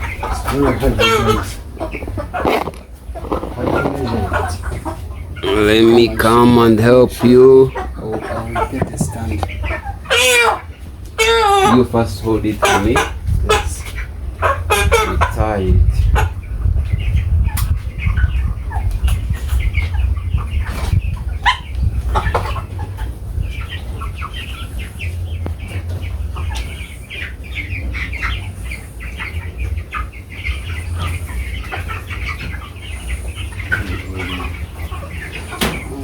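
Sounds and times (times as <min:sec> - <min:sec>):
chickens clucking: 0:00.0 - 0:36.0
sharp knocks: 0:08.7 - 0:09.6.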